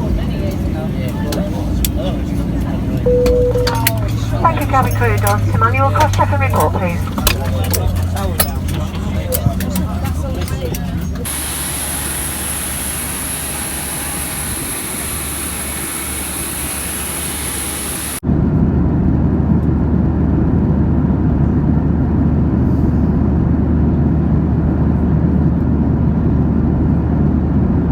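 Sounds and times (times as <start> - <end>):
steady low aircraft rumble: 0.0 - 27.9
aircraft cabin hiss: 1.2 - 7.4, 9.4 - 18.2
thin high whine: 3.1 - 5.3, 11.3 - 18.2.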